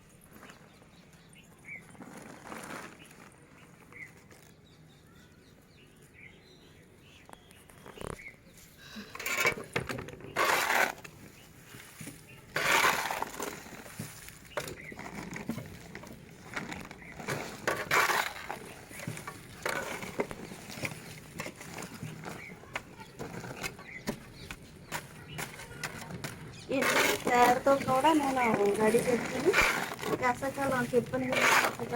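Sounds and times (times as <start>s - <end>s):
soil crunching and scraping: 0.0s - 31.9s.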